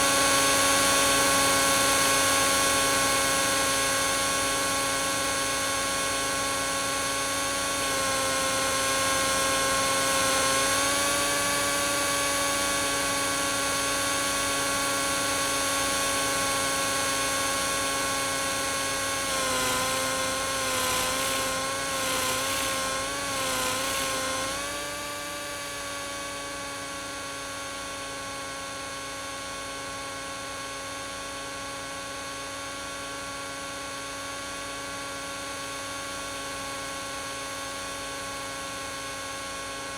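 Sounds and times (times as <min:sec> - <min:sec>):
rc helicopter motor whine: 0:00.0 - 0:27.1.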